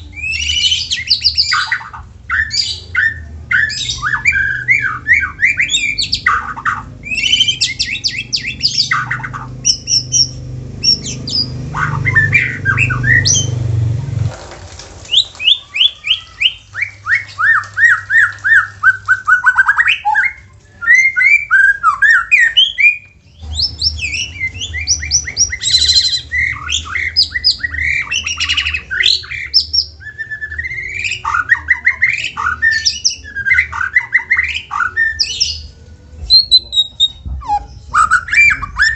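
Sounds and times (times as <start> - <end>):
bird singing trills and whistles: 0.0 - 13.7, 15.1 - 38.9
steady low hum: 1.7 - 14.4.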